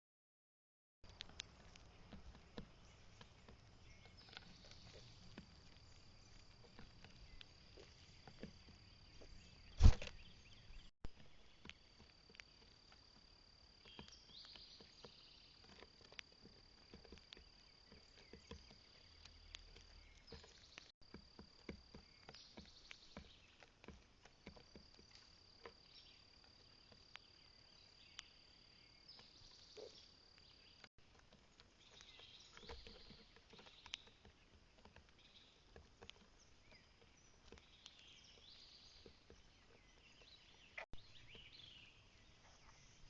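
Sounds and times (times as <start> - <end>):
loud thump: 9.8 - 10.1.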